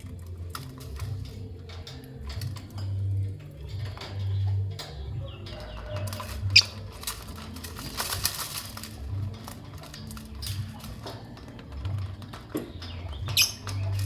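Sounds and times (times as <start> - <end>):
birds fluttering and shuffling: 0.0 - 14.0
wing flapping: 0.0 - 14.0
bird squeak: 6.5 - 6.8, 13.2 - 14.0.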